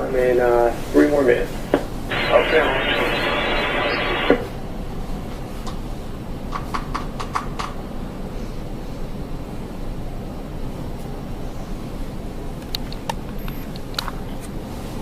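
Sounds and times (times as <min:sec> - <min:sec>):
low background noise: 0:00.0 - 0:15.0
radio transmission: 0:02.1 - 0:04.6.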